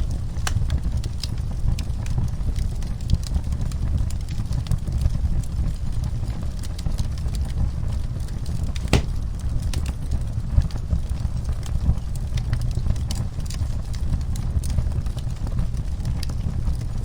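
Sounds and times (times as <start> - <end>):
wood fire crackling: 0.0 - 1.6, 8.5 - 9.9
fire pops: 8.8 - 9.5
low rumble of flames: 8.8 - 17.0.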